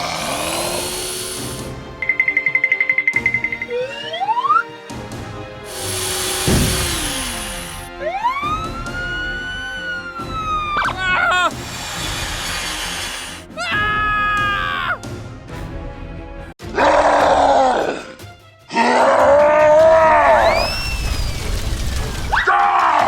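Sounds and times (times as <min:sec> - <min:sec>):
groaning voice-like sounds: 0:00.0 - 0:01.6, 0:16.7 - 0:20.5
sliding whistle: 0:02.0 - 0:04.7, 0:20.4 - 0:21.6.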